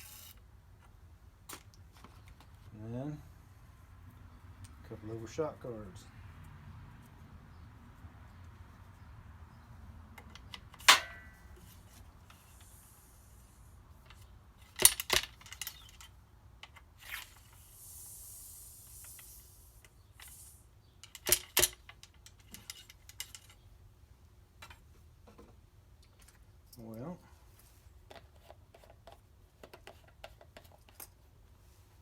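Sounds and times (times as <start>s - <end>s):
soft high scraping hiss: 0.0s - 0.4s, 11.6s - 14.0s, 17.0s - 20.9s.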